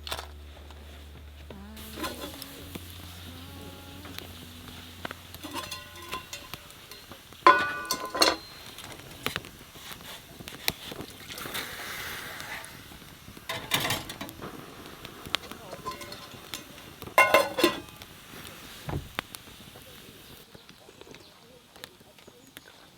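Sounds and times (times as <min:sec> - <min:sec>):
metal cookware clinking: 0:01.8 - 0:11.7, 0:13.5 - 0:18.2.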